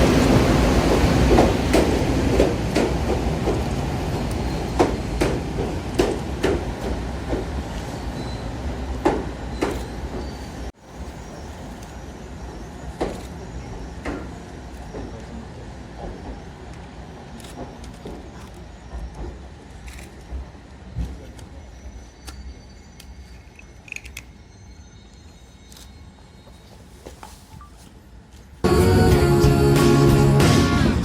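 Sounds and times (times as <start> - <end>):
railcars rumbling: 0.0 - 31.0.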